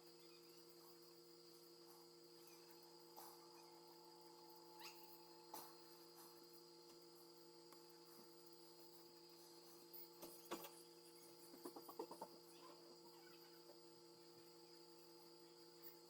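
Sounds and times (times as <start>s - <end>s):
electrical hum: 0.0s - 16.0s
small ticks: 1.8s - 14.6s.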